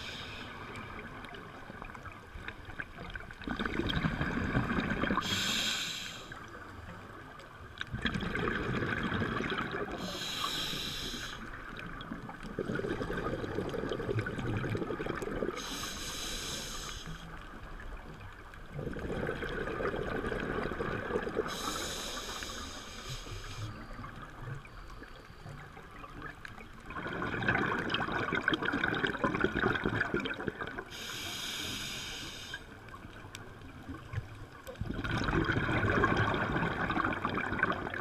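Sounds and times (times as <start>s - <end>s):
exhaled bubbles rumbling: 0.7s - 5.4s, 7.8s - 10.1s, 11.5s - 15.6s, 17.4s - 21.7s, 26.0s - 30.9s, 32.9s - 38.0s
hissing regulator inhalations: 5.2s - 6.4s, 10.0s - 11.5s, 15.6s - 17.3s, 21.5s - 23.7s, 30.9s - 32.8s.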